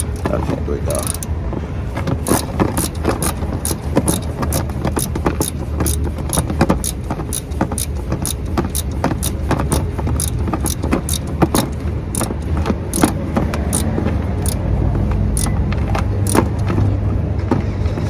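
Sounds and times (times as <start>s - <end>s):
ratchet wrench clicking: 0.0s - 0.3s, 0.9s - 1.3s, 2.2s - 14.7s, 15.3s - 15.6s, 16.2s - 16.8s
steady low rumble: 0.0s - 18.0s.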